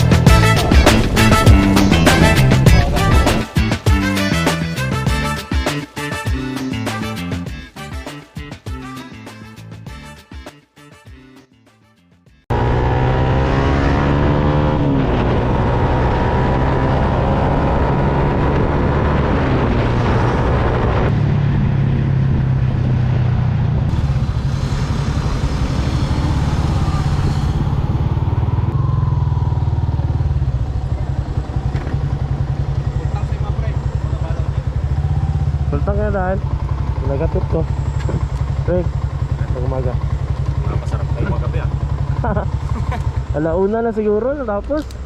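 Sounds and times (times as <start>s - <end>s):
motorcycle engine accelerating: 0.0s - 3.5s, 12.5s - 45.0s
rushing air: 23.8s - 28.9s.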